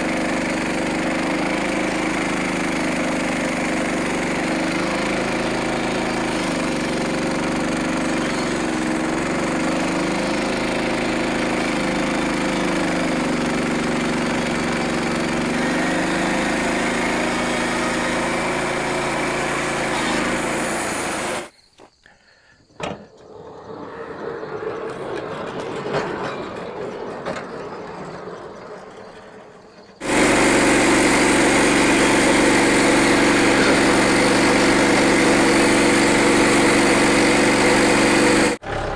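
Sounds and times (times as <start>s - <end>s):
sawmill gas engine running: 0.0s - 21.5s, 22.3s - 38.9s.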